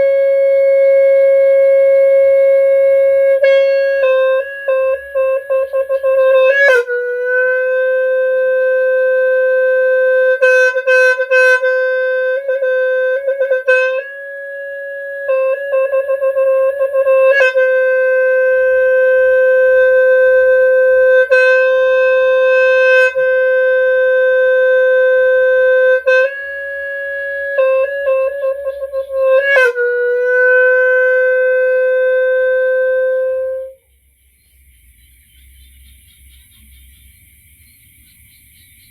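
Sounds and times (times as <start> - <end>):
horn blowing long held notes: 0.0 - 33.8.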